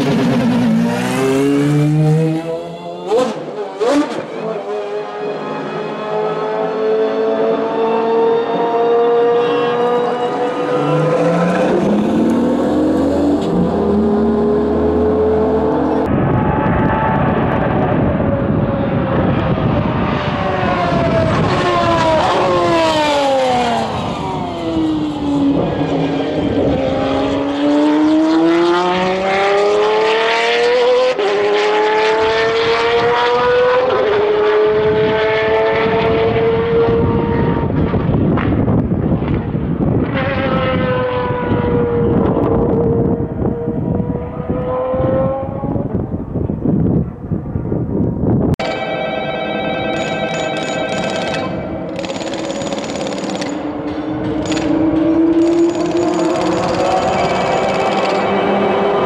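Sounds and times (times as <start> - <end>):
race car engine revving through upshifts: 0.4 - 16.1, 19.5 - 38.1, 40.0 - 46.1, 53.5 - 59.0.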